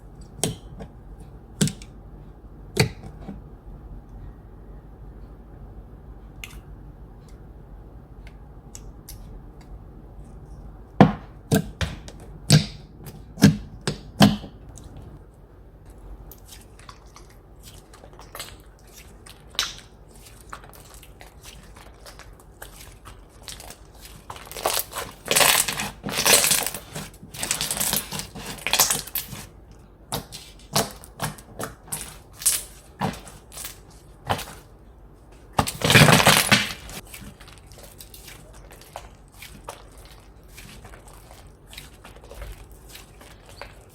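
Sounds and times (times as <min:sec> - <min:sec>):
slime crackling crunches: 0:18.0 - 0:29.5, 0:35.6 - 0:43.9
slime clicking and popping: 0:19.5 - 0:19.9.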